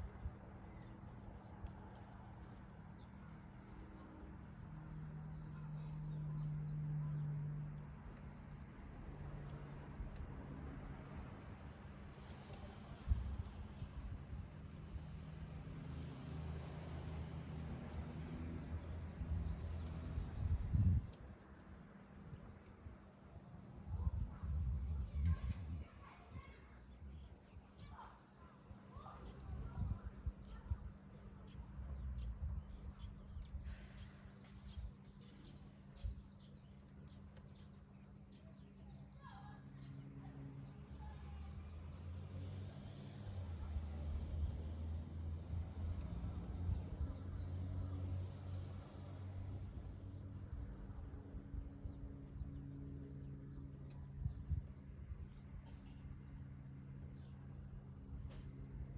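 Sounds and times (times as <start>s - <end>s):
wood fire crackling: 0.0s - 23.2s, 28.6s - 52.4s.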